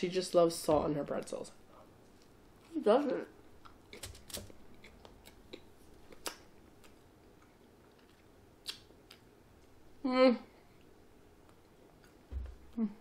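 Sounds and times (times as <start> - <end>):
chewing with mouth clicks: 4.7 - 9.7.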